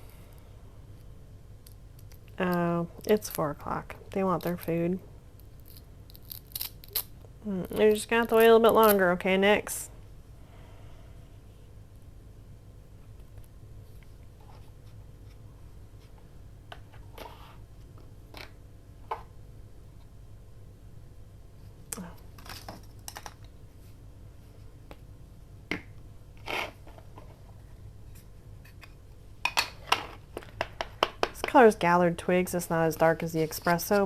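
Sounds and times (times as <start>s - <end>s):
paper and craft supplies handled: 33.0s - 34.0s.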